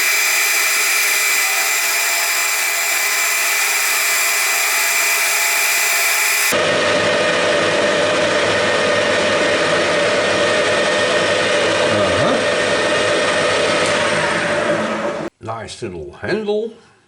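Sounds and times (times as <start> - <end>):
lathe motor humming: 0.0 - 6.6.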